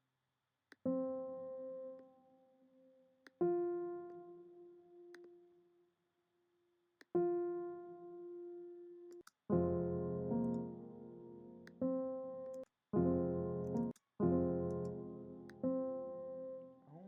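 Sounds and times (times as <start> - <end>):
faint clicks: 9.1 - 9.4, 13.6 - 14.1.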